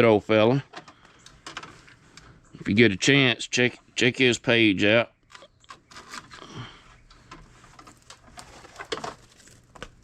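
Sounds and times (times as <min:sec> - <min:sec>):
scrap wire clicks and scrapes: 0:07.1 - 0:10.0.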